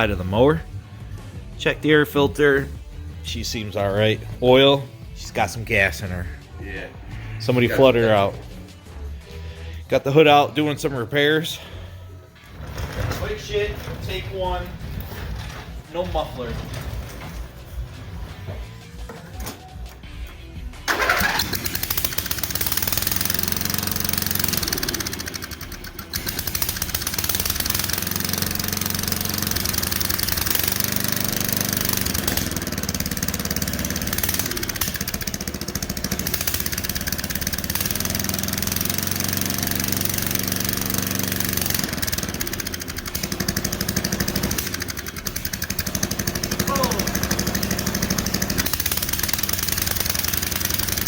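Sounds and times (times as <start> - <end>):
mower engine running without muffler: 11.5 - 19.3, 20.9 - 51.0.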